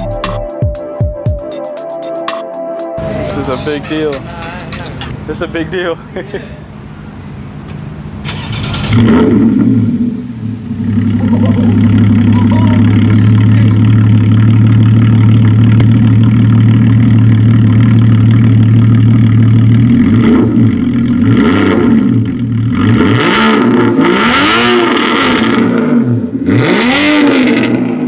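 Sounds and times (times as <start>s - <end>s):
car engine idling: 3.0s - 24.3s
engine revving in throttle blips: 6.6s - 28.0s.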